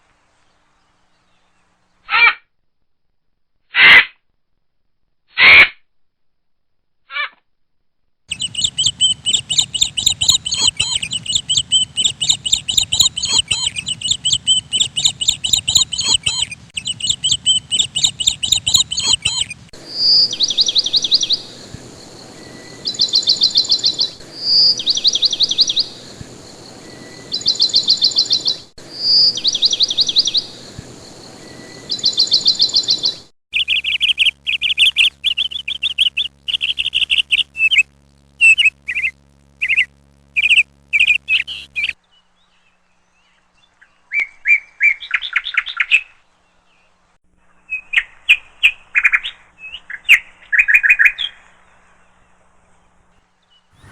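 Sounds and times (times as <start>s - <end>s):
short bird calls: 8.3s - 42.0s, 53.6s - 53.9s
bird clear note and trill: 8.3s - 43.3s, 53.6s - 53.9s
bird chattering song: 8.3s - 46.1s, 53.5s - 53.9s.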